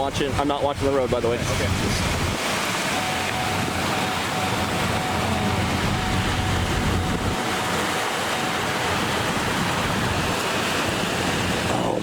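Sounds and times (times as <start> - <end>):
car road and wind noise: 0.0 - 12.0.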